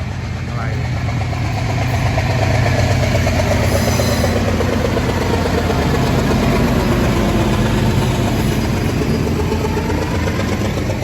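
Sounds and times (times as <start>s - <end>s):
diesel locomotive engines droning: 0.0s - 11.0s.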